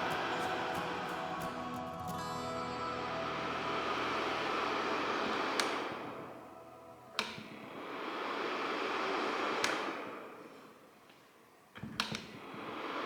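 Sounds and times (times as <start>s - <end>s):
heater fan blowing: 0.0s - 13.0s
heater switch click: 4.0s - 11.2s, 11.8s - 12.7s.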